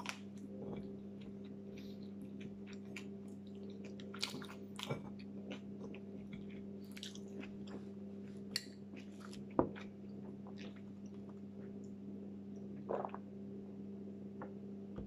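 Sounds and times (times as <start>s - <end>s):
chewing and crunching food: 0.0s - 11.9s
steady low hum: 0.0s - 15.0s.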